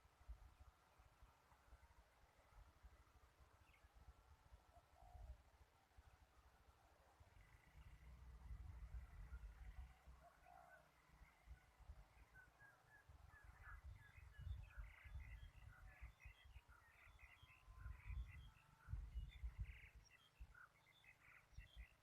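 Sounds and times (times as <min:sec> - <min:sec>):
faint bird chirps: 0:00.4 - 0:22.0
wind rumble on microphone: 0:08.3 - 0:09.9, 0:13.1 - 0:20.6.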